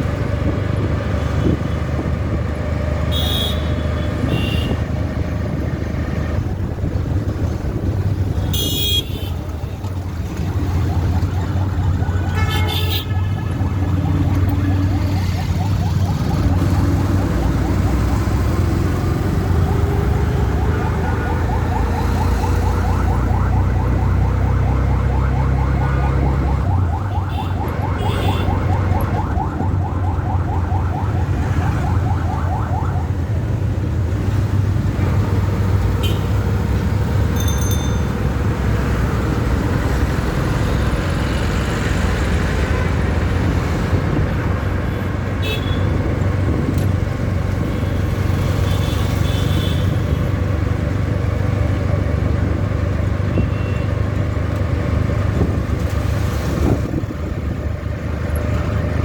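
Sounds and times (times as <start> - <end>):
city traffic rumble: 0.0 - 59.0.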